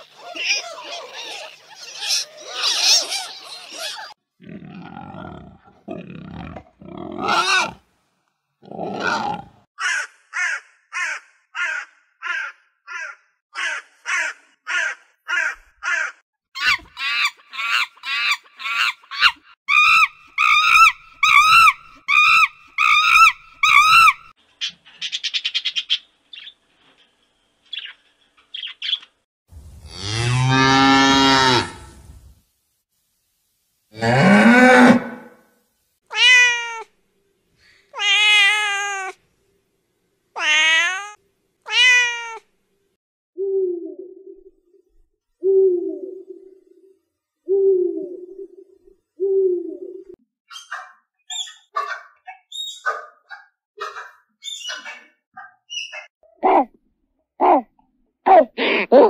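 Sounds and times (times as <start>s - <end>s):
crows cawing: 9.8s - 16.2s
meow-like bird calls: 38.0s - 39.2s, 40.4s - 42.5s.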